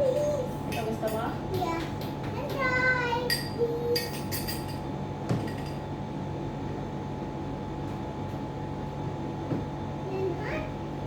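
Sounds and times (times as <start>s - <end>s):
steady electrical hum: 0.0s - 11.0s
glass or dishes clinking: 3.3s - 5.8s.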